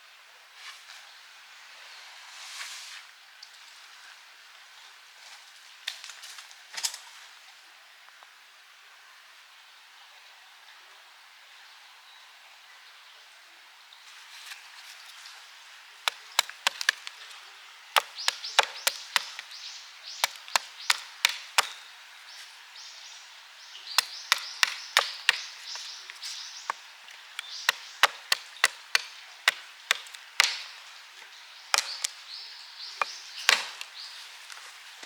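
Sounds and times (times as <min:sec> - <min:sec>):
dry crackle of wood: 0:16.0 - 0:22.6, 0:23.9 - 0:35.0
axe chopping wood: 0:16.1 - 0:17.3, 0:17.9 - 0:21.9, 0:24.0 - 0:32.2, 0:33.0 - 0:34.0.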